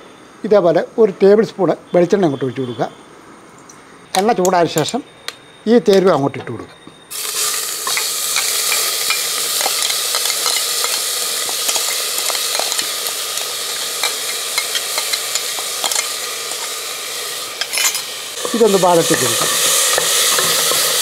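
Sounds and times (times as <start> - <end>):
aromatics sizzling in oil: 7.1 - 21.0.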